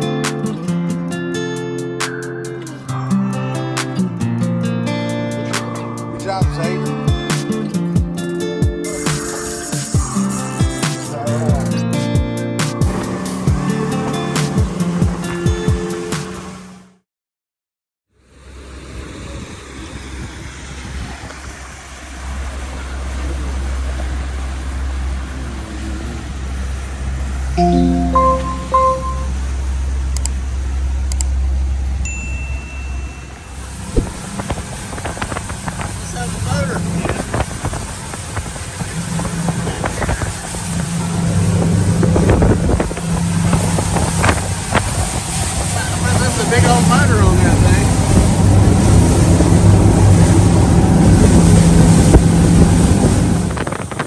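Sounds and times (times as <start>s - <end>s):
rushing water: 12.7s - 16.9s, 18.4s - 29.3s, 33.1s - 54.0s
motorboat engine rumble: 12.8s - 17.0s, 18.2s - 54.0s
wind noise: 33.6s - 46.6s, 47.3s - 54.0s.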